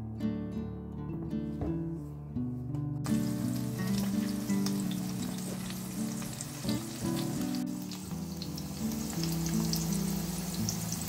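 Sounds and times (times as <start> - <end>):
background music low notes: 0.0 - 11.0
vegetables sizzling in oil: 3.1 - 11.0.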